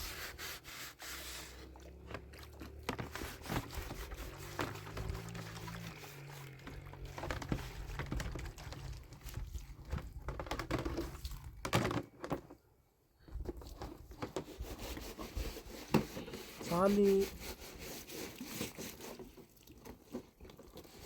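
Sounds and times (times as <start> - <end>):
objects being handled: 0.0 - 12.6.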